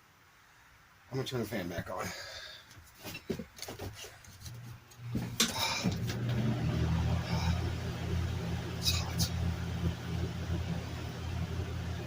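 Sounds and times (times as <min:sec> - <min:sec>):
fan motor hum: 0:04.3 - 0:12.0.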